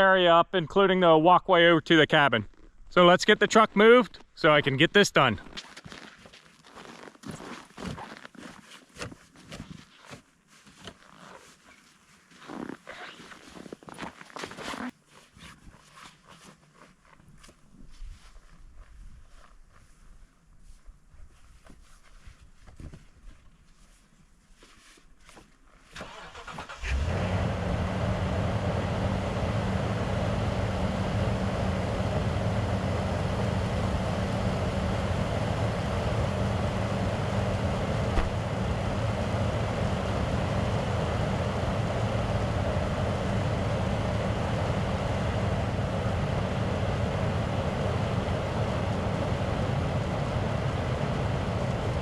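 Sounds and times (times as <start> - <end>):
truck engine cranking and running: 26.0 - 52.0.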